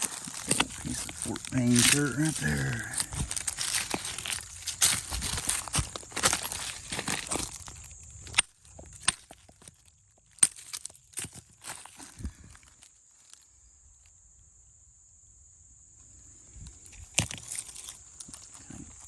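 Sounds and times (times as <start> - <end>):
stones knocking together: 0.0 - 12.3.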